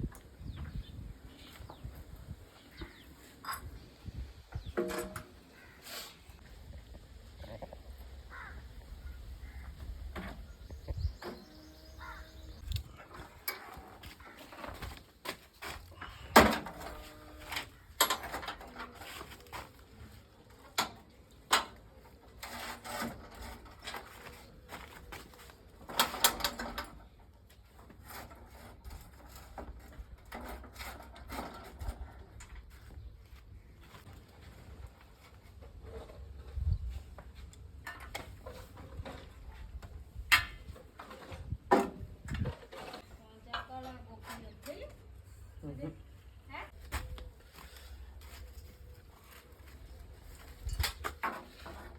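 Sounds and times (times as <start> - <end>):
crows cawing: 8.3 - 9.8, 12.0 - 12.4.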